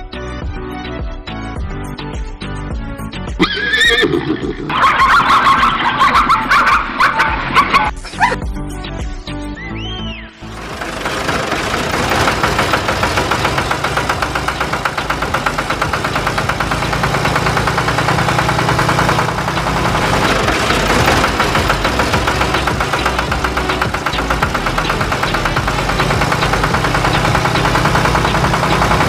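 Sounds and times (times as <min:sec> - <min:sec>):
small motor rattling: 0:10.5 - 0:29.0.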